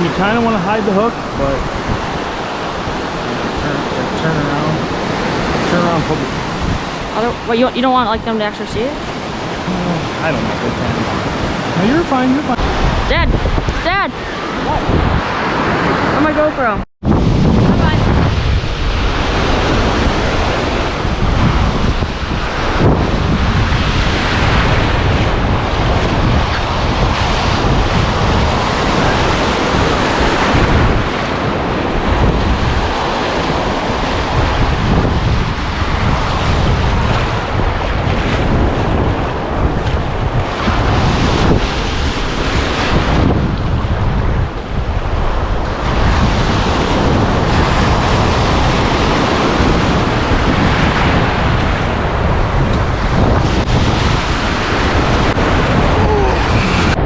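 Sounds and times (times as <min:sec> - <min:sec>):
waves surging and breaking: 0:00.0 - 0:57.0
wind buffeting microphone: 0:00.0 - 0:57.0.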